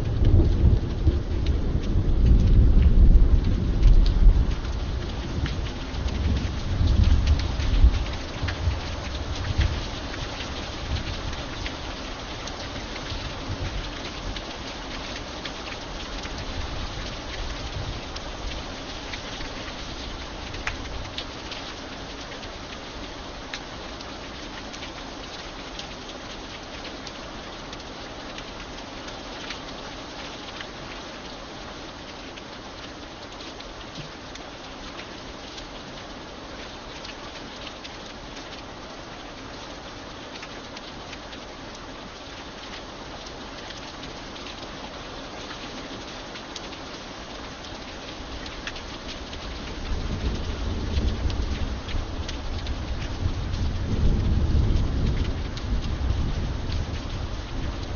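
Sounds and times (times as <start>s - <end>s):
thunder rumbling: 0.0s - 8.0s, 49.6s - 57.9s
light rain falling: 0.0s - 57.9s
raindrops ticking on a surface: 0.0s - 57.9s.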